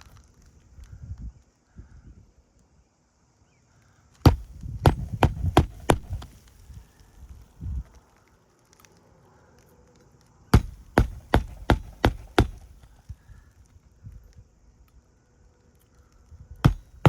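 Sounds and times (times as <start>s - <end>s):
hammer striking nail: 4.3s - 6.3s, 10.6s - 12.8s, 16.6s - 17.0s.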